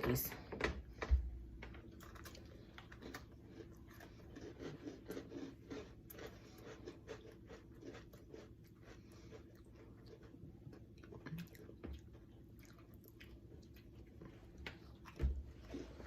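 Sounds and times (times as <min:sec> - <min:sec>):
cookies crunching while chewed: 0:01.4 - 0:16.0.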